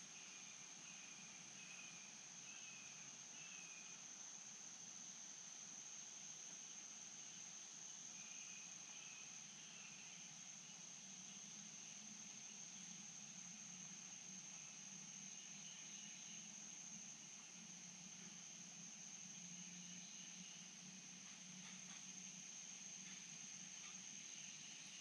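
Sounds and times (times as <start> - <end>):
insect chorus: 0.0 - 25.0
soft hiss: 0.0 - 25.0.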